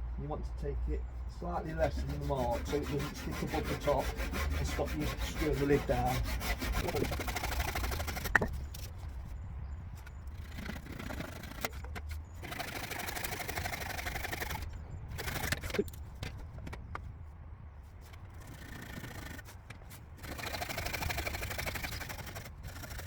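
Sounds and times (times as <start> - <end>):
saw cutting wood: 1.4 - 8.9, 10.3 - 15.9, 18.3 - 23.0.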